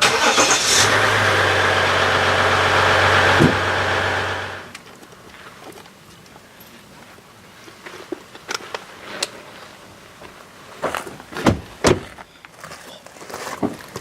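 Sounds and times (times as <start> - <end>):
heavy thumps: 3.2 - 4.4.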